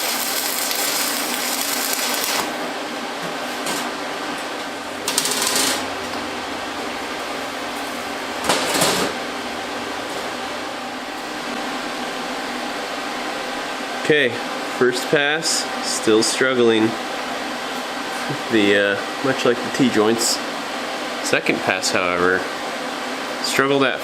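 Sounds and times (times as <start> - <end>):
harsh noise bursts: 0.0 - 2.6
welding arc crackling hiss: 0.0 - 2.6
fan hum: 0.0 - 24.0.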